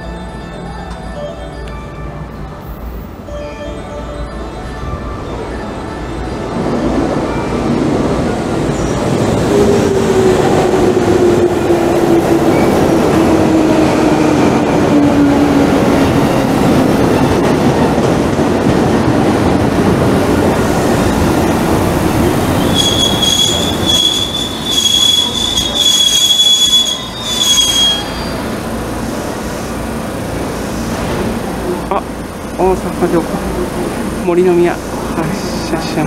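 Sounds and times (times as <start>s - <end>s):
brake squeal: 22.6s - 28.5s.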